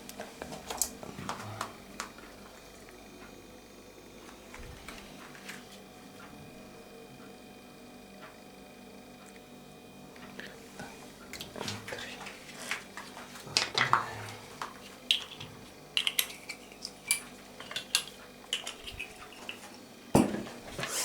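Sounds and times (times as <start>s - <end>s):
hard objects clinking: 14.6s - 19.8s.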